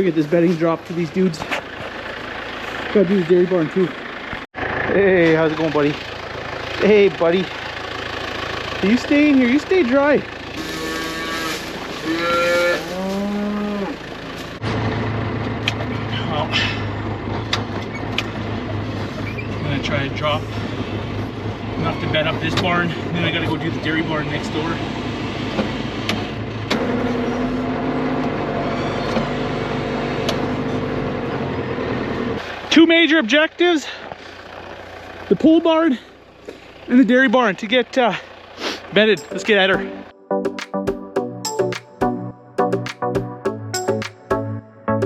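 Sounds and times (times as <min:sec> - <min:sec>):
engine idling hum: 0:00.0 - 0:45.0
cattle mooing: 0:10.6 - 0:14.1.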